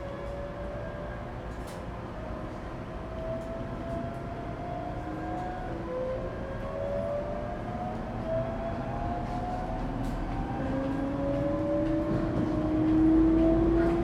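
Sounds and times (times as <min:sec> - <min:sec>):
train running rumble: 0:09.2 - 0:14.0.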